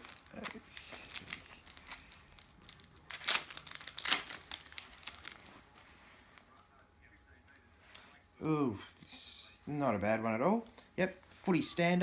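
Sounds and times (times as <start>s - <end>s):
wrapper ripping: 0.0s - 5.8s
wrapper crinkling: 0.0s - 6.6s.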